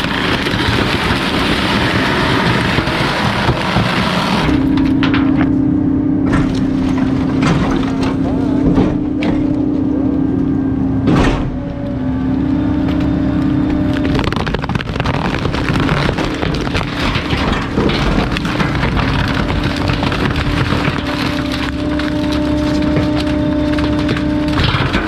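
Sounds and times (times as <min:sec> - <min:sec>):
hydraulic compactor humming: 0:00.0 - 0:25.0
waste cracking and crackling: 0:12.9 - 0:17.3.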